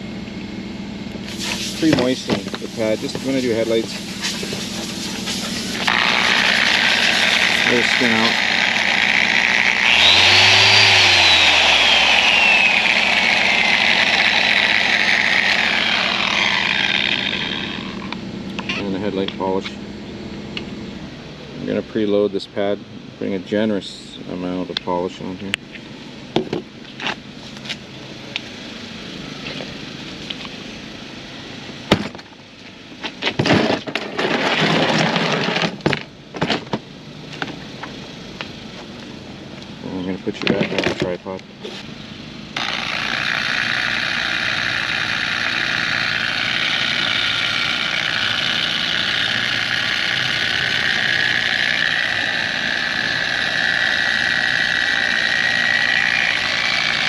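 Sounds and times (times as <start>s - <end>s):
steady hum: 0.0s - 21.9s, 41.5s - 57.0s
steady low hum: 0.0s - 33.0s
polisher motor whine: 1.2s - 19.0s, 42.6s - 57.0s
rustling scrape: 4.0s - 5.8s.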